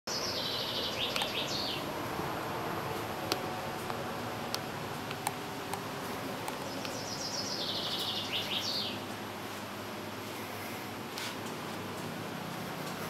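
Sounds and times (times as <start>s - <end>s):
small bird chirping: 0.1s - 1.9s, 6.5s - 9.0s.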